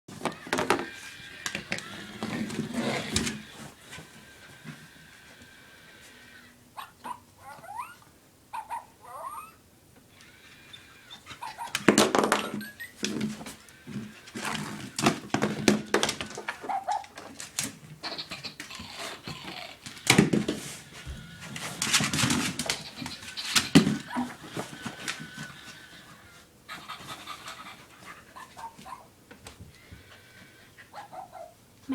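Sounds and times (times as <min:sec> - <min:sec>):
puppy scuffling and thumps: 0:11.6 - 0:17.9, 0:19.2 - 0:26.2.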